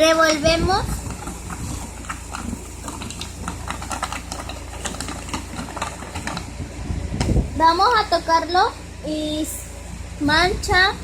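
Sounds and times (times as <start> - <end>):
slime being stirred in a bowl: 0.0 - 6.6
steady low hum: 0.0 - 11.0.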